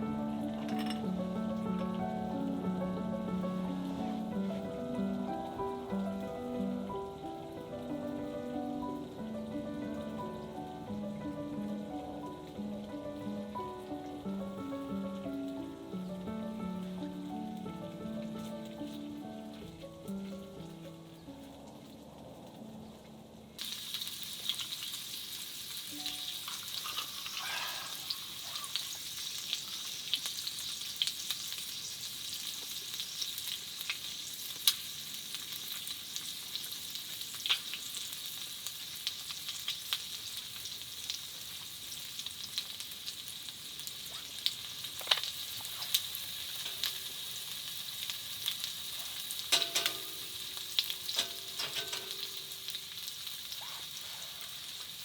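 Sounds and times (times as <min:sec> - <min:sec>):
food sizzling in a pan: 0:00.0 - 0:22.8, 0:23.6 - 0:55.0
pops and crackles: 0:25.9 - 0:27.4, 0:32.5 - 0:38.2, 0:43.8 - 0:47.1.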